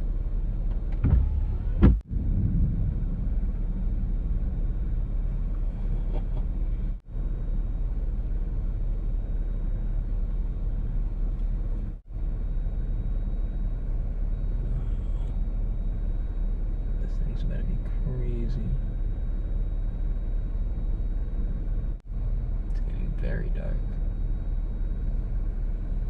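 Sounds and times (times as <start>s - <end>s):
car road and engine noise: 0.0s - 26.0s
close thunderclap: 1.1s - 5.4s.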